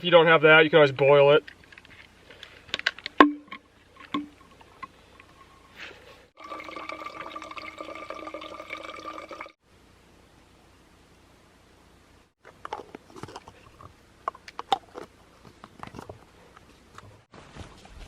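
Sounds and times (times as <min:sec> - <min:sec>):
water pouring into container: 0:06.4 - 0:09.6.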